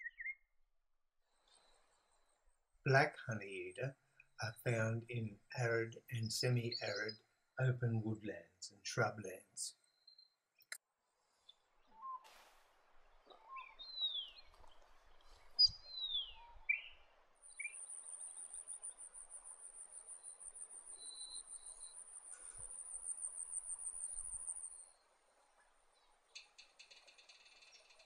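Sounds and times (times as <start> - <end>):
insect trill: 17.5 - 25.0.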